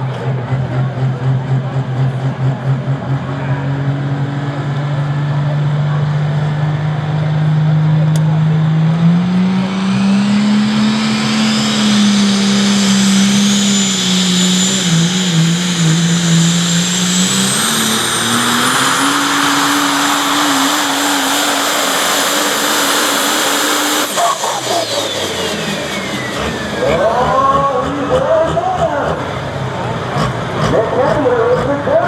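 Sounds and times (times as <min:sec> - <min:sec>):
truck engine running hard: 0:00.0 - 0:32.0
turbo whine: 0:08.2 - 0:30.4.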